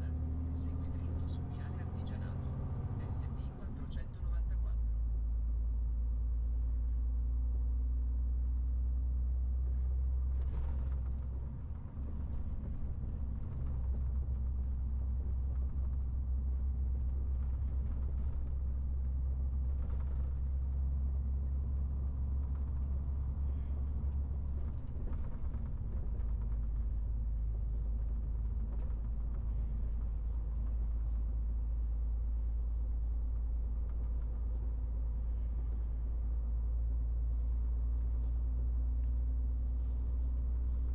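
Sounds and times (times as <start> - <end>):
truck diesel engine droning: 0.0 - 4.5
road noise: 0.0 - 4.7.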